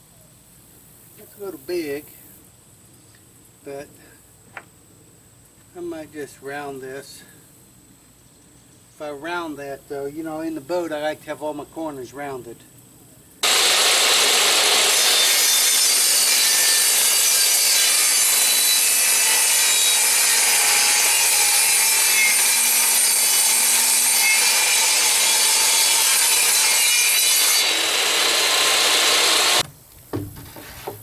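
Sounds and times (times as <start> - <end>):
power tool grinding plywood: 13.4 - 29.6.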